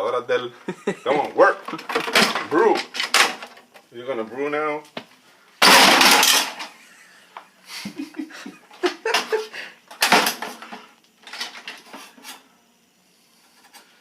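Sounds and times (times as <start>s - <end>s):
plastic parts clattering: 1.7s - 3.7s, 5.6s - 6.7s, 9.9s - 12.0s.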